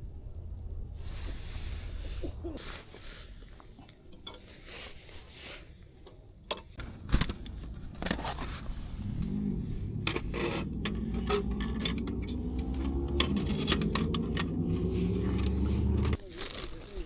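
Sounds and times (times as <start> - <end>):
objects clattering and scraping: 6.5 - 17.0.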